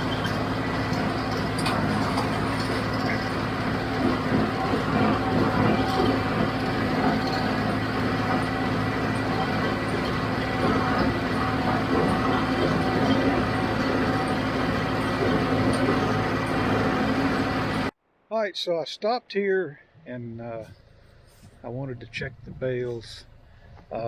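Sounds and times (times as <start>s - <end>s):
baler machinery clattering: 0.0s - 17.9s
tractor diesel engine running: 0.0s - 18.0s, 20.1s - 24.0s.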